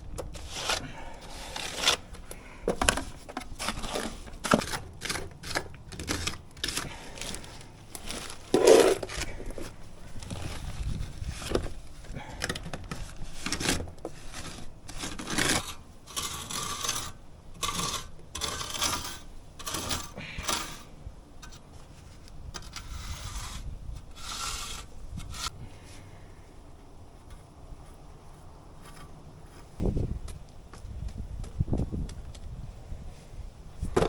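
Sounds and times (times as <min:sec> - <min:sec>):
rubbing and scraping: 0:00.0 - 0:25.6.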